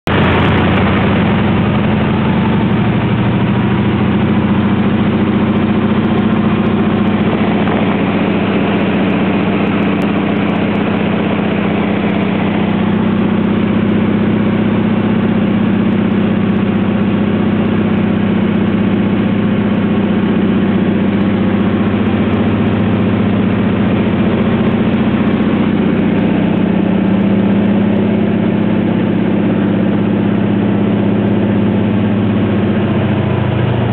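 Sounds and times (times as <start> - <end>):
floatplane engine droning: 0.0 - 33.9.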